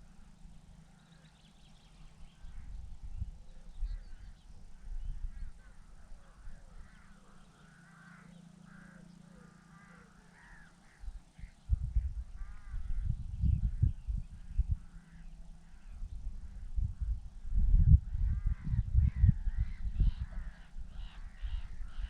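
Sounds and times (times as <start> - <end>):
crows cawing: 5.4 - 11.5, 12.4 - 13.0, 18.2 - 22.0
low rumble: 11.4 - 22.0.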